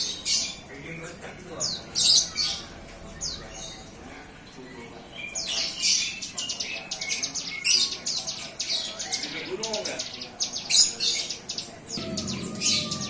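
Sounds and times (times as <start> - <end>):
young bird chirping: 10.5 - 13.0.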